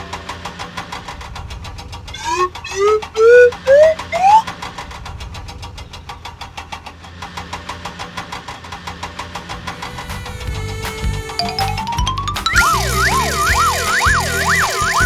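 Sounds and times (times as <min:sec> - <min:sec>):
cartoon vehicle engine knocking: 0:00.0 - 0:15.0
rising whistle-like tones: 0:09.6 - 0:15.0.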